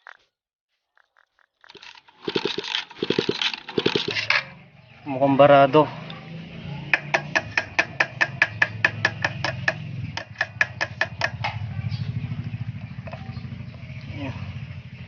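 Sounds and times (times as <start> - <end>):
rapid tapping: 1.2 - 4.3, 6.9 - 11.6.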